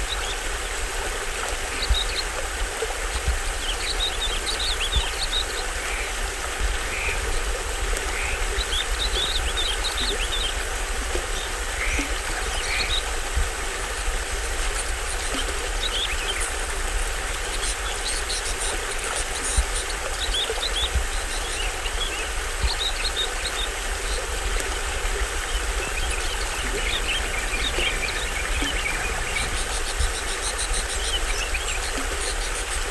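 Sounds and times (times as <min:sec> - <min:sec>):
small waterfall running: 0:00.0 - 0:32.9
birds chirping: 0:03.6 - 0:13.2, 0:19.6 - 0:32.9.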